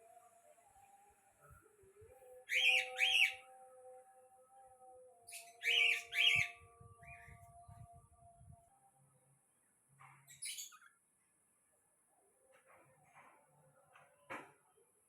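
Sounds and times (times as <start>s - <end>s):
bird whistled calls: 5.6s - 6.5s.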